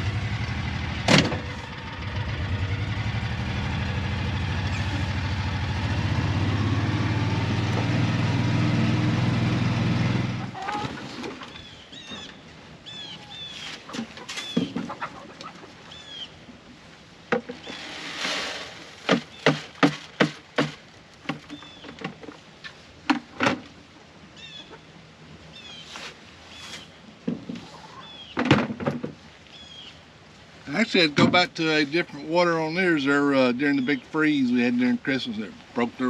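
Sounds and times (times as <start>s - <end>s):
birds chirping: 2.9s - 8.2s, 10.4s - 16.5s, 19.2s - 19.8s, 21.2s - 22.1s, 24.4s - 24.9s, 27.7s - 28.4s, 29.5s - 30.0s, 30.7s - 36.0s
wooden knocks and clatter: 13.9s - 15.1s, 17.3s - 17.7s, 19.1s - 22.4s, 23.0s - 23.7s, 27.2s - 27.7s, 28.3s - 29.2s.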